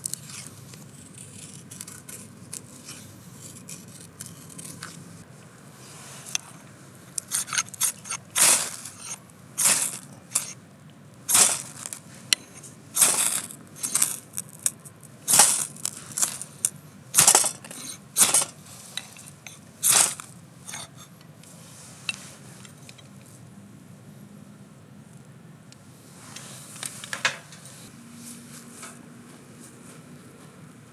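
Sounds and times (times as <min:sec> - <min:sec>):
knife shaving wood: 0:00.0 - 0:05.2, 0:05.8 - 0:10.6, 0:11.3 - 0:21.1.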